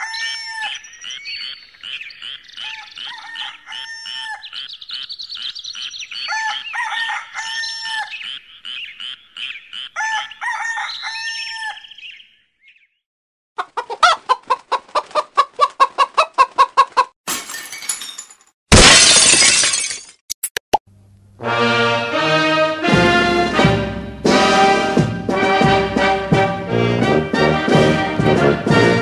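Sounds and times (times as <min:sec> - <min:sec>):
chickens clucking: 0:01.8 - 0:10.9, 0:13.6 - 0:17.1.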